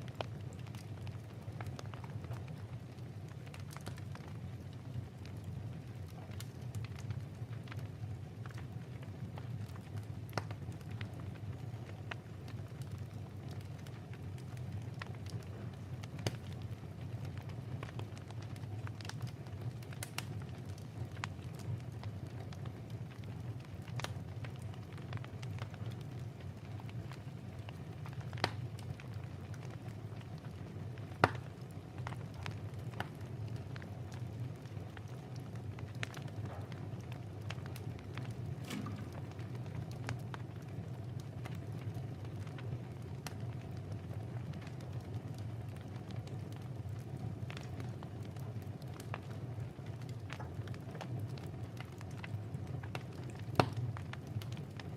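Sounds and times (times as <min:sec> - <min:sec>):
wood fire crackling and popping: 0:00.0 - 0:54.9
sharp pops of fire: 0:10.3 - 0:11.1, 0:14.6 - 0:16.6, 0:17.3 - 0:21.8, 0:28.0 - 0:29.7, 0:30.9 - 0:33.2, 0:37.5 - 0:40.7, 0:52.9 - 0:54.6.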